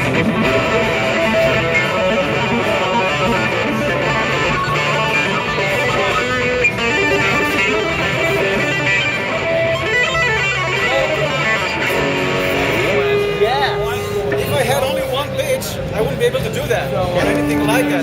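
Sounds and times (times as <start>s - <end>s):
electric guitar with pitch jumps: 0.0s - 18.0s.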